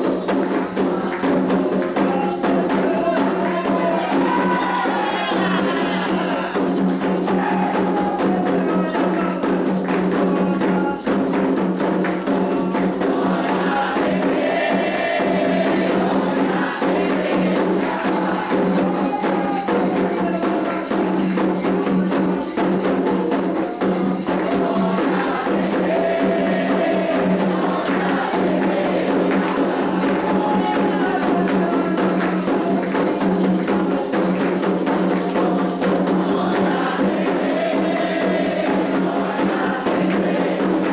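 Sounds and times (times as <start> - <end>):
hand drums and percussion: 0.0 - 40.9
voices singing: 0.0 - 40.9.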